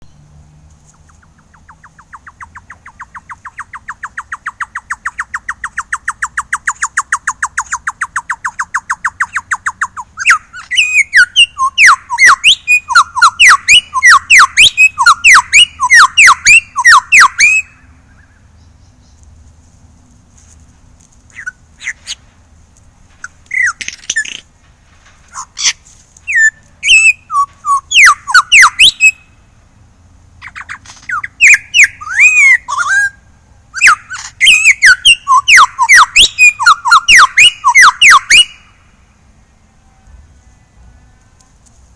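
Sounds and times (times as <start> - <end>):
lyrebird calling: 0.8 - 19.2, 21.3 - 22.3, 23.2 - 24.5, 25.2 - 29.4, 30.4 - 38.9.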